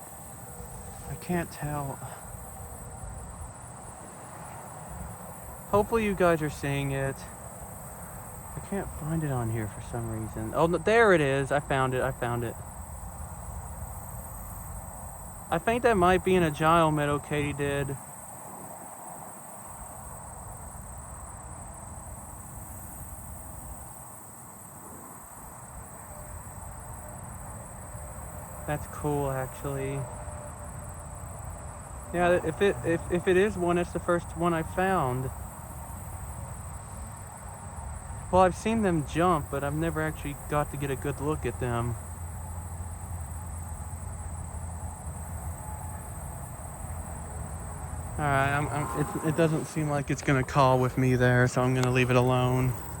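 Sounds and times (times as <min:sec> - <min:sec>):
crickets and katydids trilling: 0:00.0 - 0:53.0
high-pitched insect chorus: 0:00.0 - 0:53.0
low steady rumble: 0:42.4 - 0:52.9.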